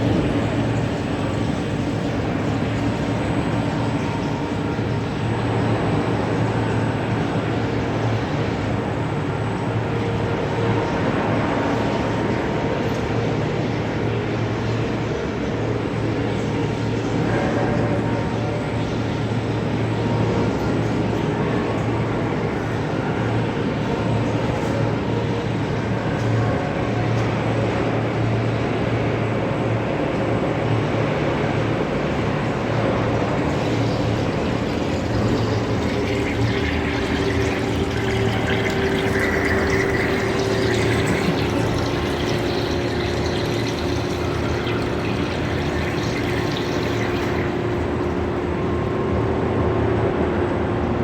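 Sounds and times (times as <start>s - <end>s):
machine running with low hum: 0.0s - 51.0s.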